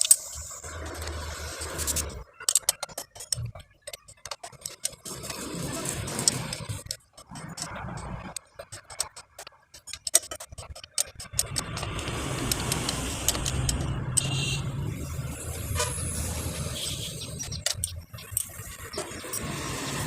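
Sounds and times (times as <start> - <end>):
hand tools clicking: 0.0 - 14.3, 17.3 - 19.6
vehicle engine rumble: 5.1 - 20.0.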